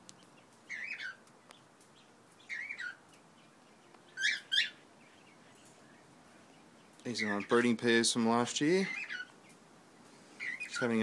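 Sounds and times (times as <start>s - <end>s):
cockatiel whistling calls: 4.2s - 4.8s, 8.9s - 9.3s.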